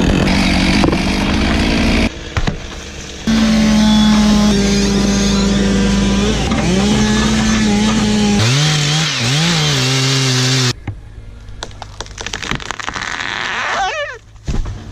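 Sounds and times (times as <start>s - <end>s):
chainsaw cutting wood: 0.0s - 2.1s, 3.3s - 10.8s.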